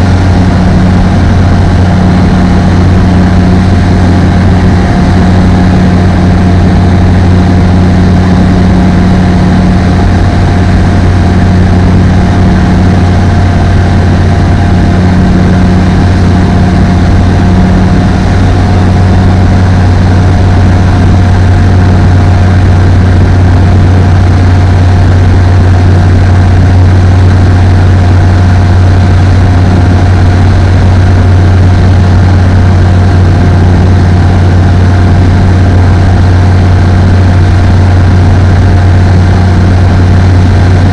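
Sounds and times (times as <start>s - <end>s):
aircraft engine and propeller drone: 0.0s - 40.9s.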